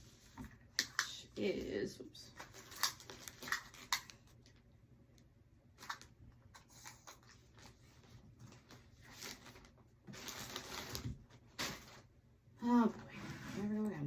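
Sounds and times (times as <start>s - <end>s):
rustling: 5.8s - 12.1s.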